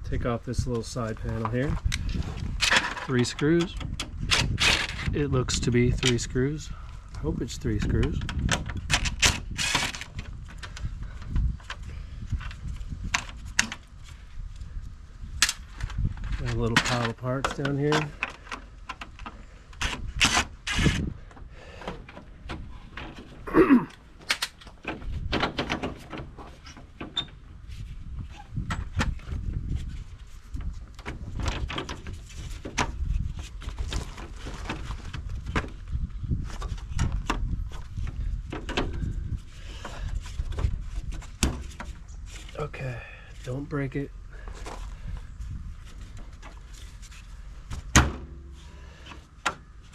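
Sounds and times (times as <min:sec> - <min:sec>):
hand tools clicking and scraping: 0:15.4 - 0:25.0.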